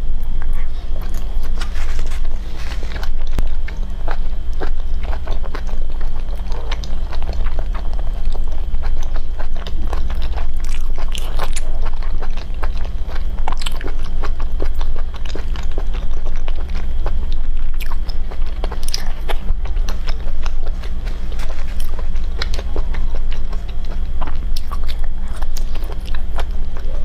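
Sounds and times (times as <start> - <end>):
steady low hum: 0.0 - 27.0
chewing and biting: 0.4 - 27.0.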